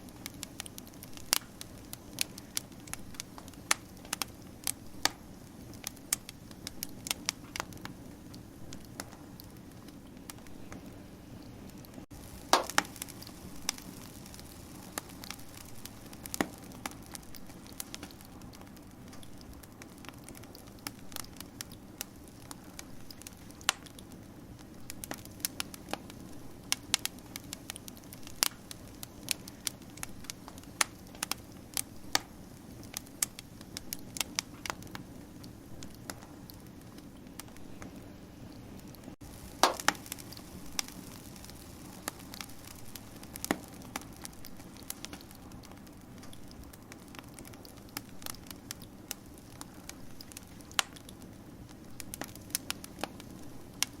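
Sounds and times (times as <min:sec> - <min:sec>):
low rush of burning: 0:00.0 - 0:54.0
wood fire crackling and popping: 0:00.0 - 0:54.0.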